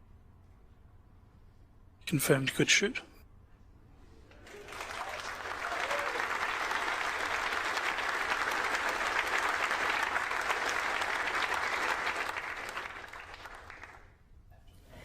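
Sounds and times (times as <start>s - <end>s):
people applauding: 4.3s - 14.2s.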